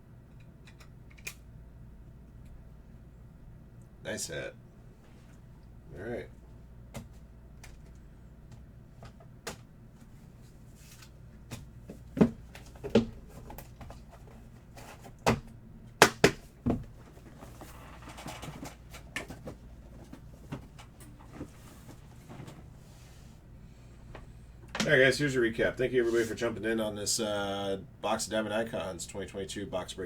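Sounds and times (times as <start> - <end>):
soft rustle of cards: 9.9 - 11.6.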